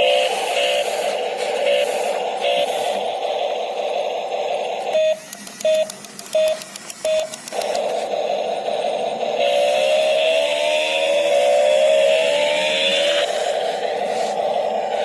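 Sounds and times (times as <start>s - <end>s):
short electronic beeps: 5.0s - 7.6s.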